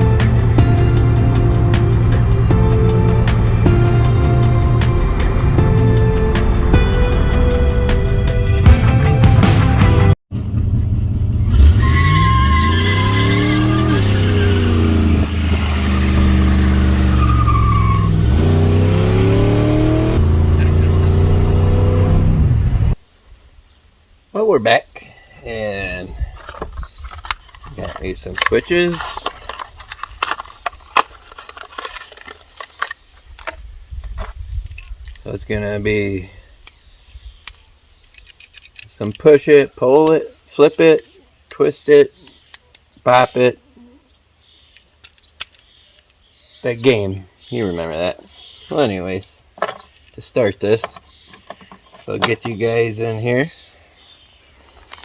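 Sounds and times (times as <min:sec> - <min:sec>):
engine revving: 0:00.0 - 0:07.7, 0:09.4 - 0:23.0
low rumble: 0:10.3 - 0:11.8
high squeal: 0:11.5 - 0:18.3.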